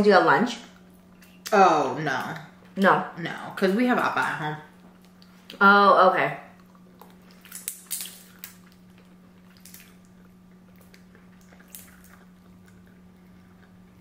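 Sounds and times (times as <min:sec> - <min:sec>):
wet mouth clicks and smacks: 0:06.6 - 0:13.0.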